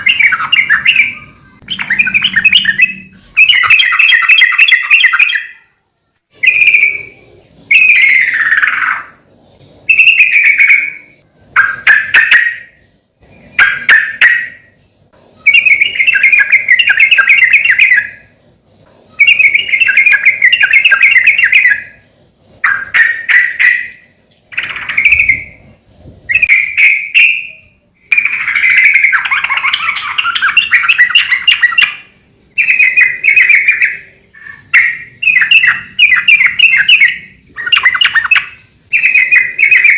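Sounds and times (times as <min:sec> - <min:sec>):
bulbul singing chattering phrases: 0:00.0 - 0:05.6, 0:26.3 - 0:39.9.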